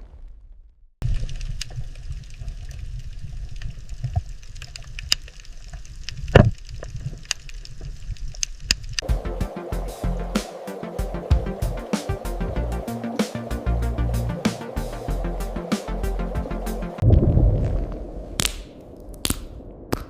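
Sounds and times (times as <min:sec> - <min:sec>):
crackling clicks: 0:01.0 - 0:09.1, 0:17.6 - 0:20.0
music: 0:09.0 - 0:17.0
low rumble: 0:09.0 - 0:20.0.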